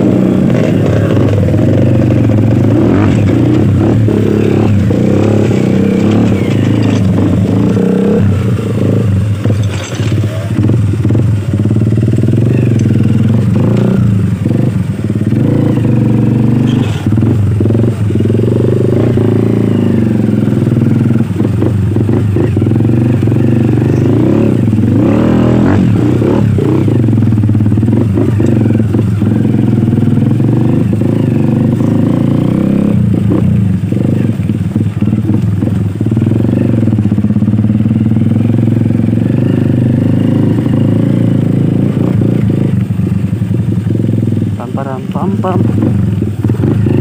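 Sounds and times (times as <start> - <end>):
dirt bike engine running: 0.0 - 47.0.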